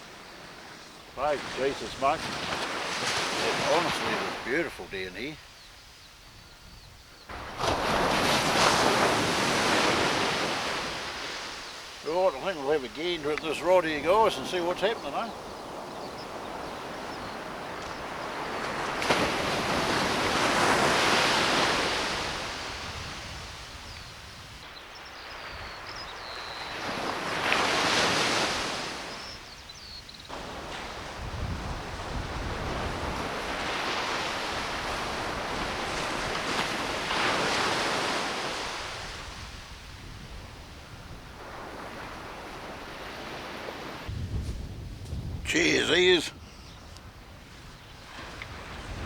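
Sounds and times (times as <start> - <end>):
waves breaking on a beach: 0.0 - 49.0
wind on microphone: 15.3 - 27.6, 30.3 - 49.0.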